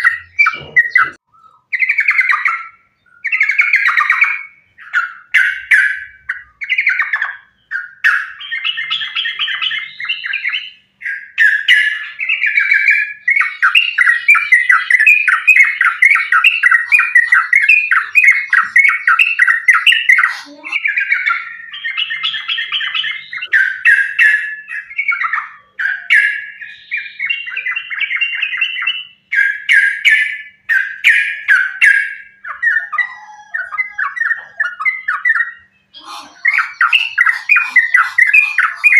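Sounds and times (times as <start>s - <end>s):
bulbul singing chattering runs: 34.2s - 38.9s.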